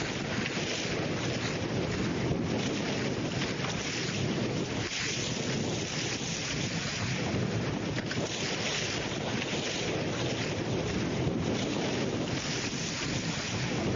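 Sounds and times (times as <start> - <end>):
rushing water and spray: 0.0 - 13.9
wind buffeting the microphone: 0.0 - 13.9.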